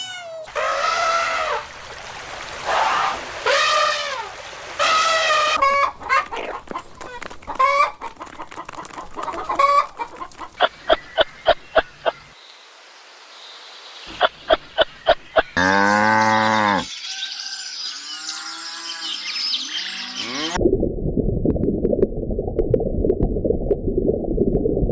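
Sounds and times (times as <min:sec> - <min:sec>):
chickens clucking: 0:04.8 - 0:12.2, 0:14.1 - 0:15.6
high chirping calls: 0:09.2 - 0:12.3.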